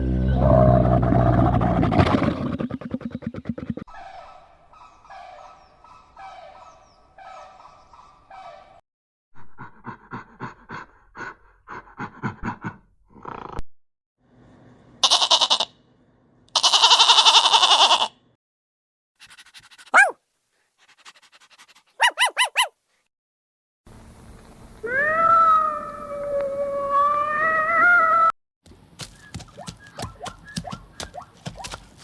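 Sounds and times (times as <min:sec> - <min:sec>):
animal calls: 0:00.0 - 0:08.8, 0:24.8 - 0:32.0
loud animal cries: 0:15.0 - 0:15.7, 0:16.6 - 0:18.2, 0:24.8 - 0:28.3.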